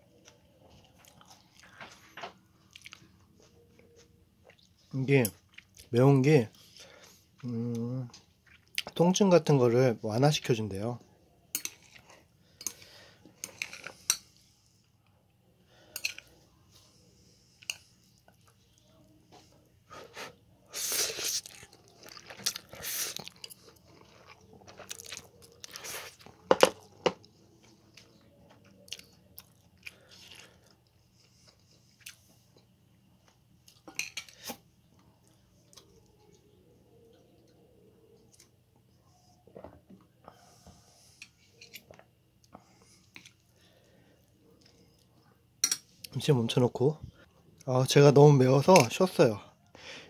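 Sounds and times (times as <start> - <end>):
chewing and mouth noises: 2.7 - 3.1, 21.1 - 26.4.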